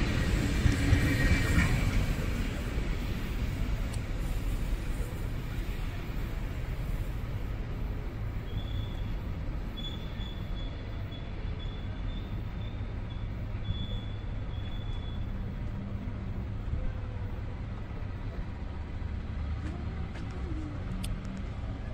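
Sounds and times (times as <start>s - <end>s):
distant train rumbling: 0.0s - 21.9s
faint high wheel squeal: 8.4s - 16.1s.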